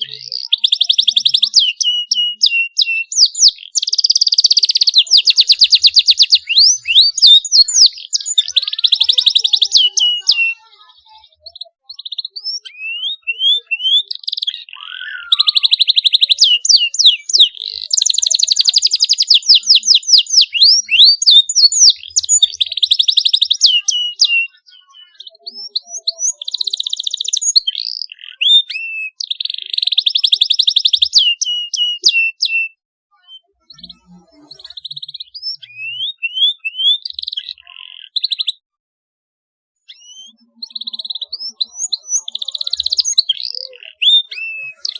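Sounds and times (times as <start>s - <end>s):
canary singing trills: 0.0s - 38.7s, 39.8s - 44.9s.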